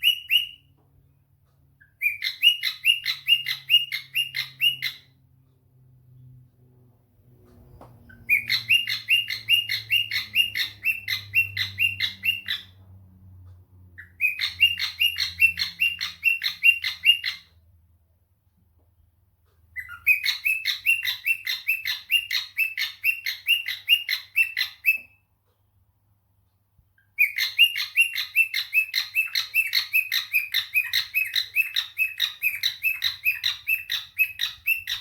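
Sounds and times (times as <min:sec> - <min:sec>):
cockatiel chirping: 0:00.0 - 0:00.8, 0:01.8 - 0:05.2, 0:08.0 - 0:12.8, 0:14.0 - 0:17.6, 0:19.7 - 0:25.2, 0:27.0 - 0:35.0.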